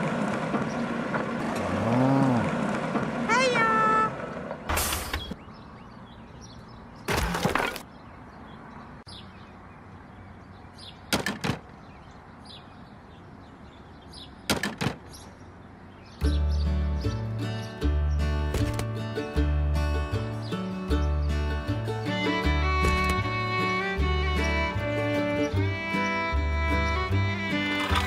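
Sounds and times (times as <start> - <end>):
sharp knocks: 11.1 - 11.7, 14.5 - 15.1.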